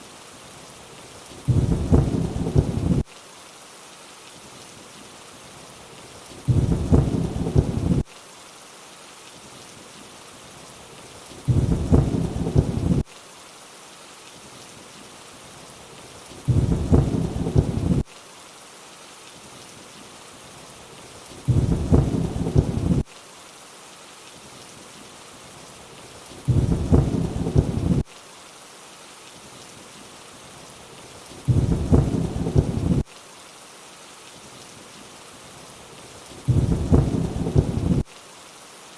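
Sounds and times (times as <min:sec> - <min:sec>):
rainfall hiss: 0:00.0 - 0:38.9
low thunder rumble: 0:01.5 - 0:03.0, 0:06.5 - 0:08.0, 0:11.5 - 0:13.0, 0:16.5 - 0:18.0, 0:21.5 - 0:23.0, 0:26.5 - 0:28.0, 0:31.5 - 0:33.0, 0:36.5 - 0:38.0.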